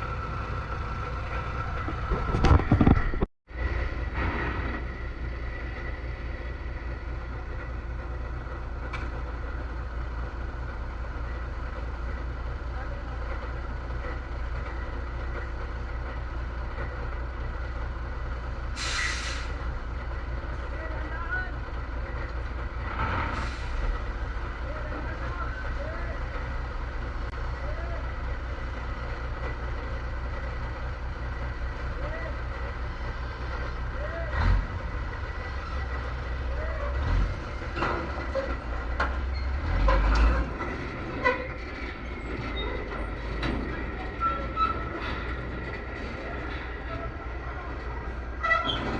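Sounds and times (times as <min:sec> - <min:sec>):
truck engine rumbling: 0:00.0 - 0:48.9
metallic clanks and rattles: 0:36.9 - 0:47.4, 0:48.0 - 0:48.9.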